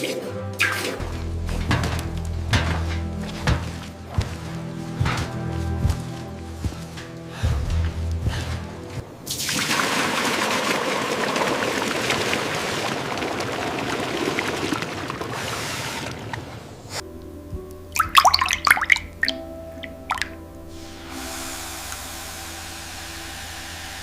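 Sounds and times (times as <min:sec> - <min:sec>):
water pouring: 0:09.3 - 0:16.6, 0:18.0 - 0:20.4.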